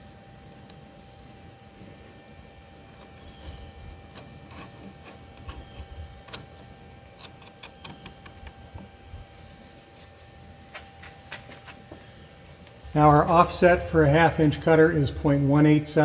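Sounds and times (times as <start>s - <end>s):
faint steady hum: 0.0s - 16.0s
metallic clicks of tooling: 7.2s - 8.6s.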